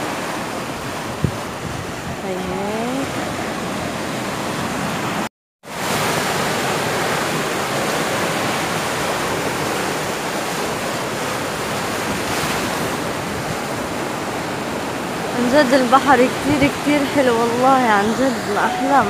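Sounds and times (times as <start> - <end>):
wind on microphone: 0.0 - 5.2, 11.5 - 15.5, 16.1 - 19.0
sea surf washing: 0.0 - 19.0.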